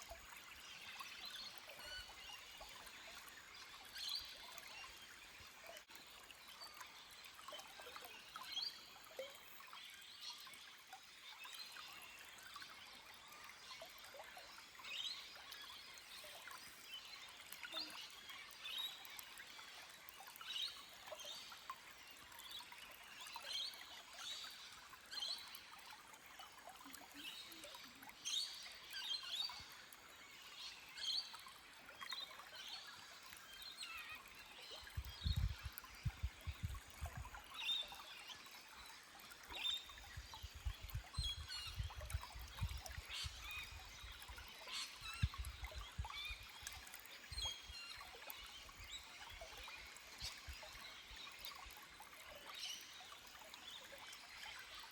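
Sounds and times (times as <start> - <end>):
trickling forest stream: 0.0 - 54.9
small birds chirping: 32.2 - 54.0.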